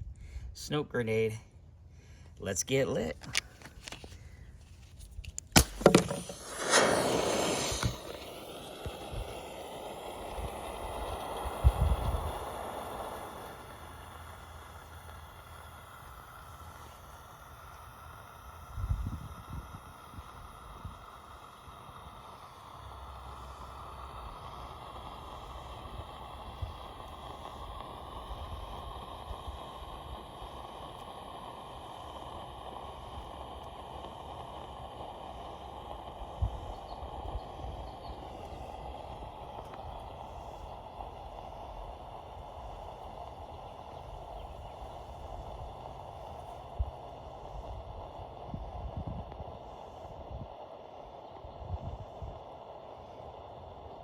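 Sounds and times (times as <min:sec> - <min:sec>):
smoke grenade hissing: 0:02.7 - 0:54.0
smoke grenade clicks: 0:03.2 - 0:04.2, 0:05.1 - 0:13.3
faint crackles: 0:03.2 - 0:54.0
wind rumble on microphone: 0:06.8 - 0:13.0, 0:18.6 - 0:22.2, 0:36.1 - 0:40.8, 0:43.0 - 0:50.5, 0:51.4 - 0:52.4.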